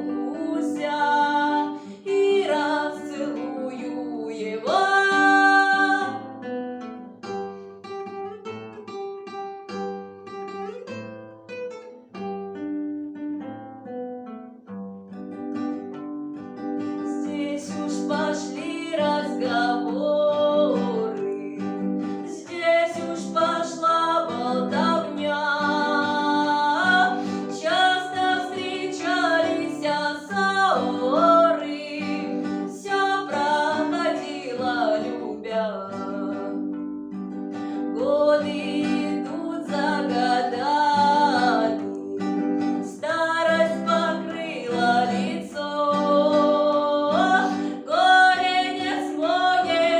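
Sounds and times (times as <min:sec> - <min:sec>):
woman singing: 0:00.0 - 0:06.5, 0:16.9 - 0:37.0, 0:37.6 - 0:49.9.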